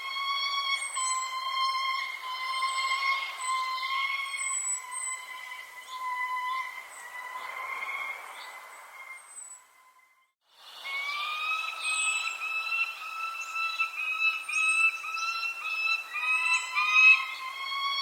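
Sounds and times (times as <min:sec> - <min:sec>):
high whistling tone: 0:00.0 - 0:08.2, 0:08.9 - 0:18.0
high bird chirps: 0:10.8 - 0:18.0.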